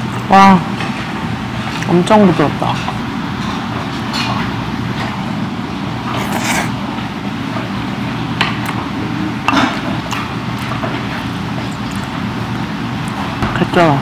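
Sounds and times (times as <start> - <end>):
restaurant room noise: 0.0 - 14.0
person chewing: 6.1 - 6.8, 9.5 - 13.3.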